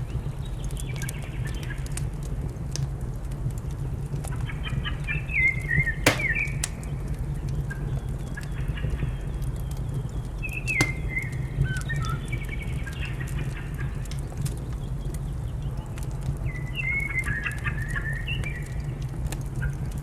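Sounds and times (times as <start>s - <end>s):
wood fire crackling: 0.3s - 20.0s
fire pops: 6.1s - 7.6s, 10.2s - 13.0s.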